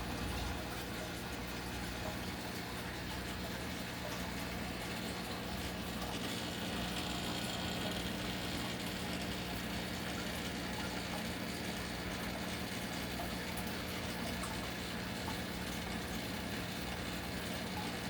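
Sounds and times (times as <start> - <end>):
running water: 0.0 - 18.0
small pump humming: 0.0 - 18.0.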